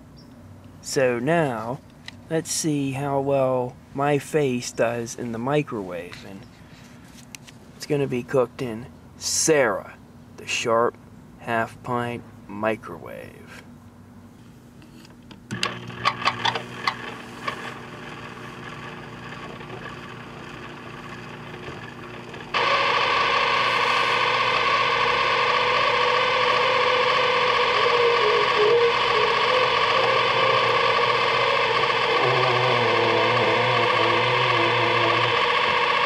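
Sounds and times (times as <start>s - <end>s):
microwave oven humming: 15.5s - 36.0s
loud distorted guitar music: 22.6s - 36.0s.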